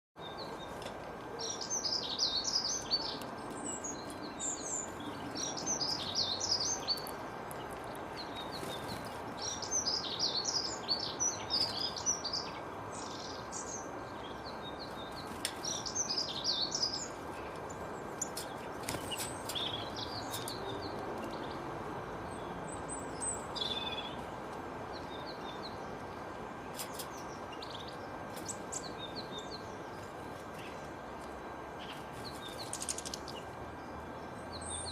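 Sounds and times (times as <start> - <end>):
steady background hiss: 0.2 - 34.9
songbird twittering: 1.4 - 21.6, 22.2 - 24.2.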